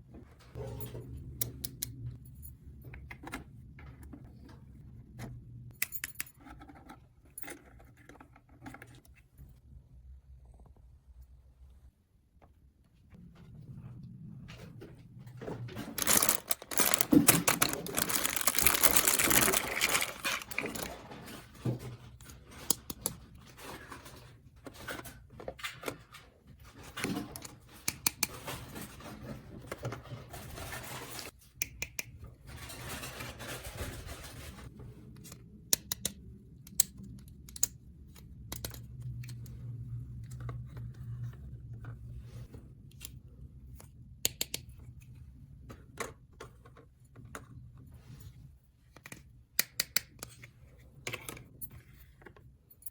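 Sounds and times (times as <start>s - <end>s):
plastic packaging rustling: 15.8s - 21.5s.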